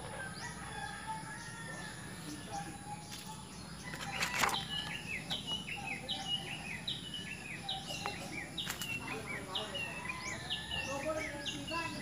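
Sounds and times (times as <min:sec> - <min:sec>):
bird calling: 0:00.0 - 0:12.0.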